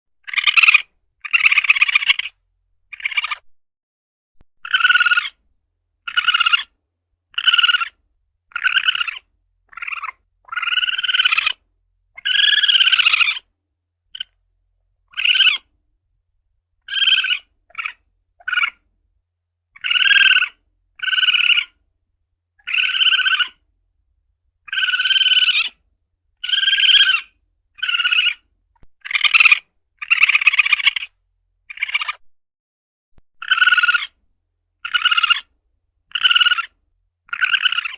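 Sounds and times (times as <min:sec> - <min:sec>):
civet calls: 0:00.2 - 0:03.5, 0:04.6 - 0:05.4, 0:06.0 - 0:13.5, 0:14.1 - 0:14.4, 0:15.1 - 0:15.7, 0:16.8 - 0:18.8, 0:19.8 - 0:21.8, 0:22.6 - 0:23.6, 0:24.6 - 0:25.8, 0:26.4 - 0:32.2, 0:33.4 - 0:34.2, 0:34.8 - 0:35.5, 0:36.1 - 0:37.9.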